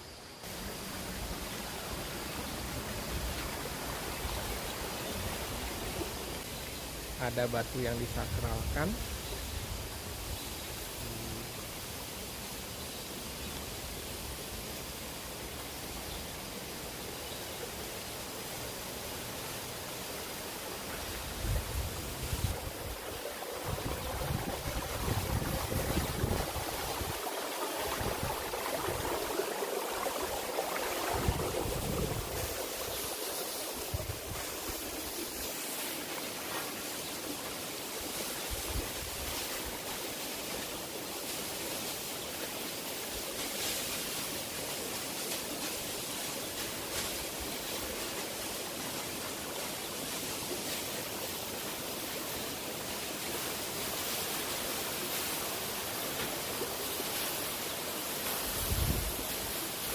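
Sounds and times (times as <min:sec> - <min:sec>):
waterfall rushing: 0:14.8 - 0:59.9
wind buffeting microphone: 0:21.2 - 0:33.1, 0:58.6 - 0:59.2.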